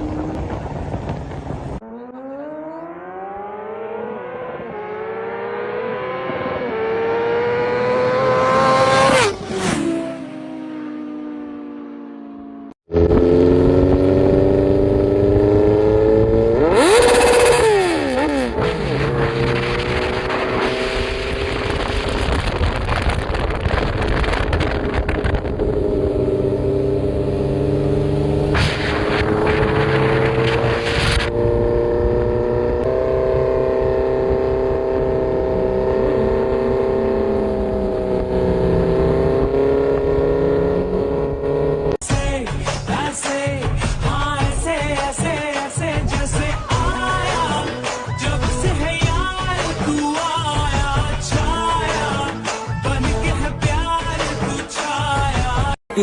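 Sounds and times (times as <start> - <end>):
motorcycle engine revving: 1.8 - 42.0
loud rushing noise: 17.3 - 25.0, 28.3 - 31.3.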